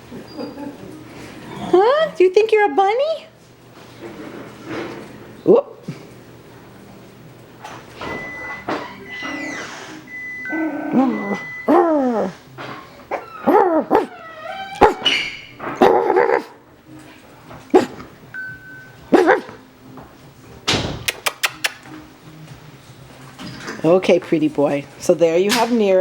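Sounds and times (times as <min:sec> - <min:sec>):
puppy barking and yipping: 0:13.1 - 0:15.2, 0:19.1 - 0:19.6
sharp clicks: 0:21.1 - 0:21.9.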